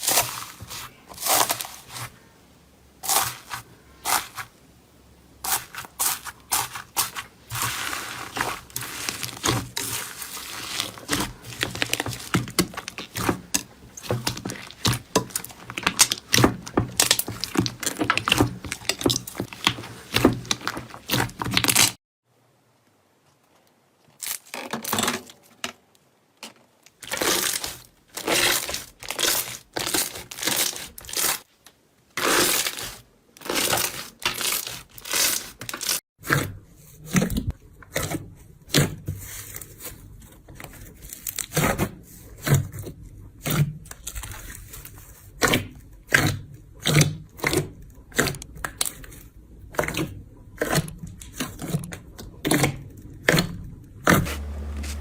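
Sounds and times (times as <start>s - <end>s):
slime squishing and tearing: 0.0s - 2.2s, 3.0s - 4.5s, 5.4s - 22.0s, 27.0s - 31.5s, 32.2s - 40.0s, 40.8s - 55.0s.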